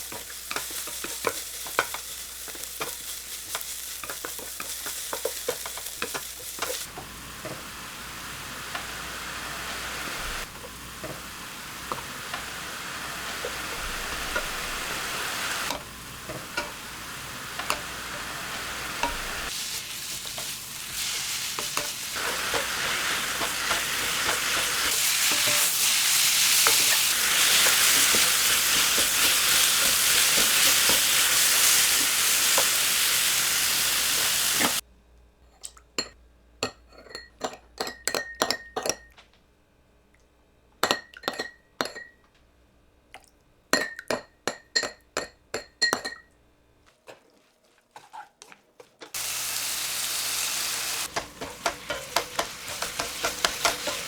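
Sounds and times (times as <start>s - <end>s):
food sizzling in a frying pan: 0.0s - 34.8s, 49.2s - 54.0s
utensil clinking on dishes: 51.1s - 54.0s.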